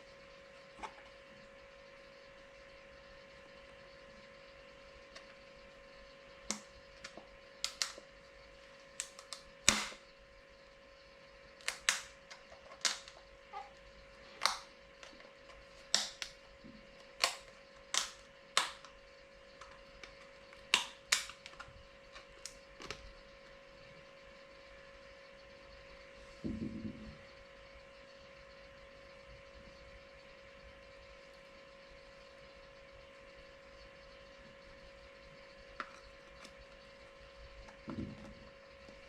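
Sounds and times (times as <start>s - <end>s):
steady hum: 0.0s - 39.0s.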